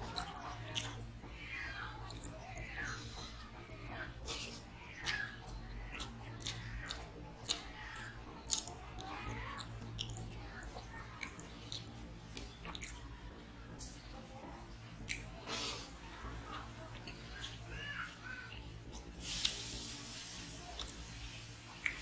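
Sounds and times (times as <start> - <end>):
man chewing food: 0.0 - 22.0
wet mouth clicks and smacks: 4.3 - 10.5, 11.1 - 13.1, 15.0 - 15.3, 21.8 - 22.0.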